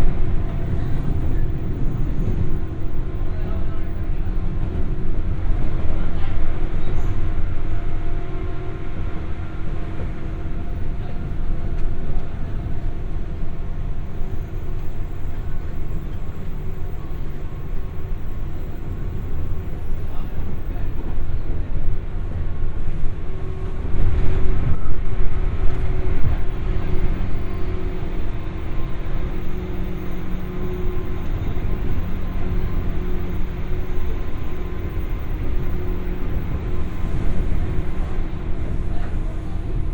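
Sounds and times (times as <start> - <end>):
faint whine: 0.0 - 39.9
train wheels rumbling on rails: 0.0 - 39.9.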